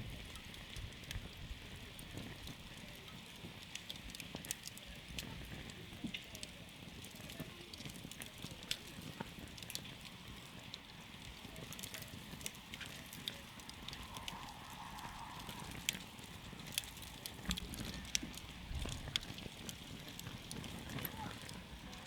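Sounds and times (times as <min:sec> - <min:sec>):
campfire crackling and popping: 0:00.0 - 0:22.0
hiss of burning fire: 0:00.0 - 0:22.0.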